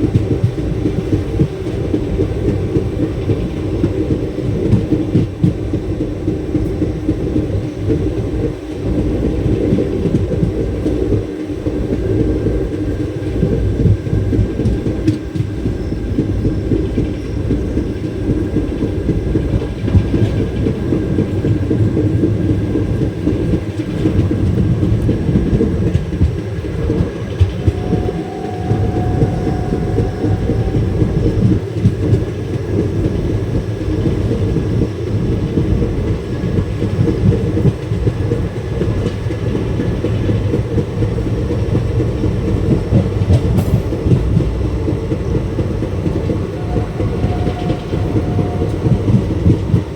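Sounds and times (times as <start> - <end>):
train rumbling on track: 0.0 - 49.9
faint whine: 26.8 - 32.8.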